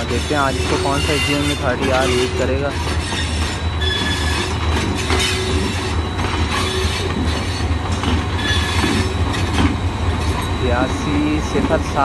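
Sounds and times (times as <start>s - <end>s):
low train rumble: 0.0s - 12.0s
steel wheels squealing: 0.0s - 12.0s.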